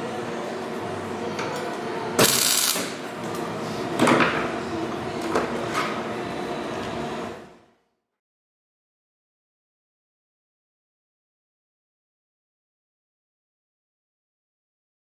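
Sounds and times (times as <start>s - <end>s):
harsh bursts: 2.2s - 3.0s.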